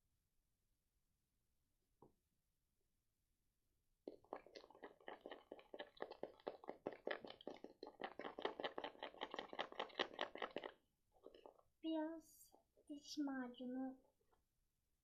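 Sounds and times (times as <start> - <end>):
slime being stirred clicking: 4.1 - 11.6.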